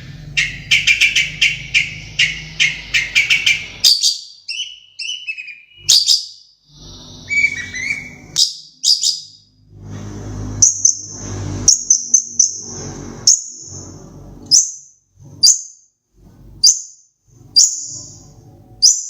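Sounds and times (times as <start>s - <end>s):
bird chattering song: 0.2s - 9.5s, 10.6s - 13.8s, 14.5s - 14.8s, 15.4s - 15.8s, 16.6s - 19.0s
bird whistled notes: 0.4s - 6.4s, 7.0s - 9.4s, 17.5s - 19.0s.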